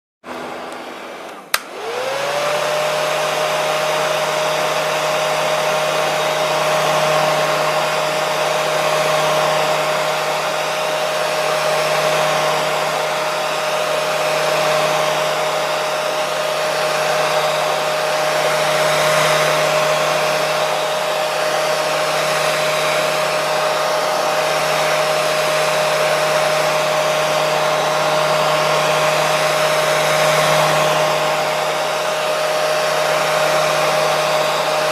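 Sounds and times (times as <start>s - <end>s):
hair dryer motor whine: 0.2s - 34.9s
hair dryer switch click: 0.7s - 2.2s.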